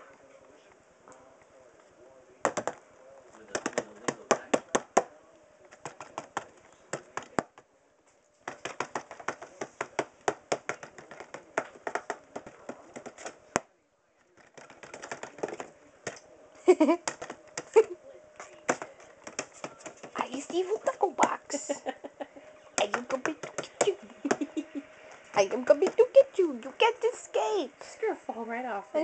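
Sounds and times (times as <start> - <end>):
tapping on cardboard box: 3.5 - 5.1, 8.5 - 13.7, 14.4 - 16.2, 18.5 - 20.5.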